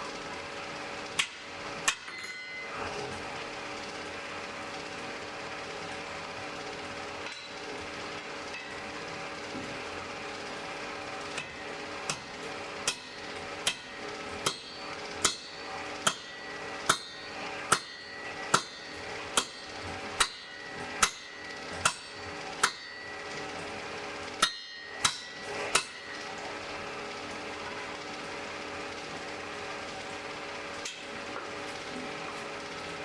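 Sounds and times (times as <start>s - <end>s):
hammer striking anvil: 1.2s - 2.8s, 11.4s - 23.4s, 24.4s - 26.2s.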